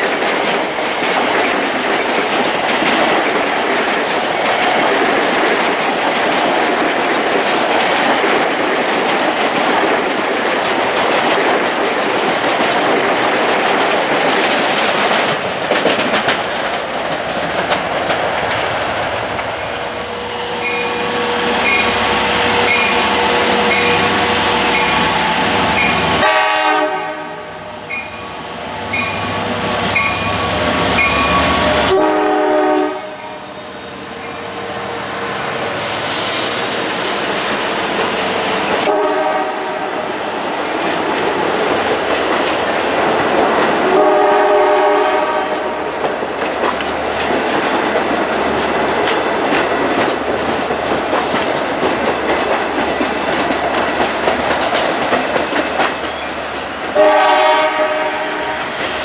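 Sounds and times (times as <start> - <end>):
train wheels clattering on rails: 0.0 - 59.0
bell ringing: 20.6 - 24.1, 27.9 - 31.9
train horn: 25.9 - 27.9, 28.9 - 33.7, 38.8 - 40.1, 43.9 - 45.9, 56.9 - 58.8.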